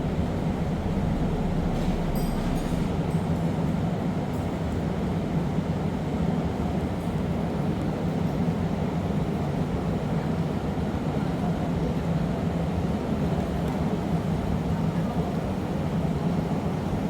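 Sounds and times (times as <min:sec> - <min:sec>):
gas furnaces and blowers roaring: 0:00.0 - 0:05.6.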